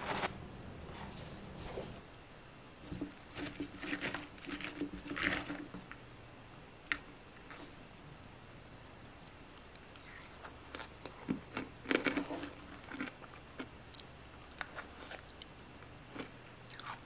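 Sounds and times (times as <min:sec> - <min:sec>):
chewing crunchy granola: 0:03.0 - 0:05.8, 0:09.1 - 0:17.0.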